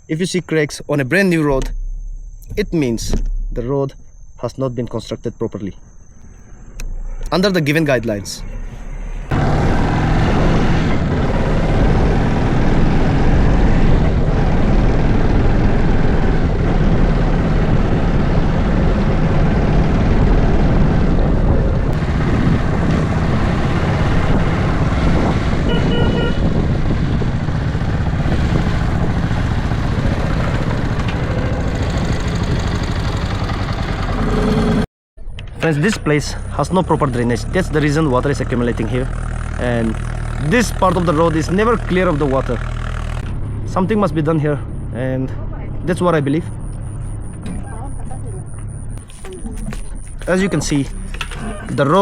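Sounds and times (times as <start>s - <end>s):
thin high tone: 0.0s - 9.2s
vehicle rumbling: 0.0s - 52.0s.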